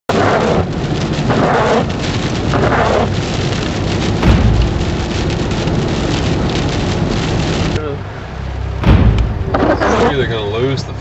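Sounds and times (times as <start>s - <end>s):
storm wind and rain: 0.1s - 11.0s
low boom: 4.1s - 10.2s.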